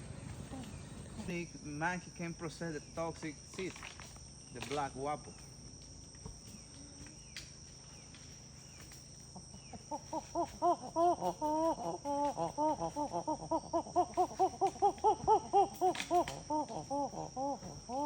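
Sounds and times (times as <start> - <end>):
high insect drone: 0.0 - 18.0
repeated animal calls: 8.7 - 18.0.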